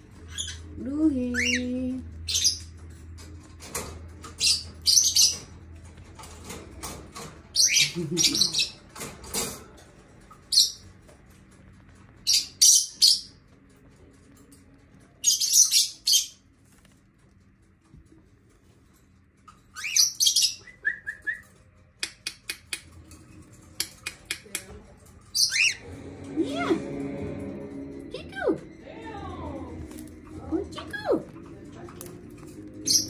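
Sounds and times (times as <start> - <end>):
cockatiels screechy chirps: 19.7 - 20.8, 25.4 - 25.8.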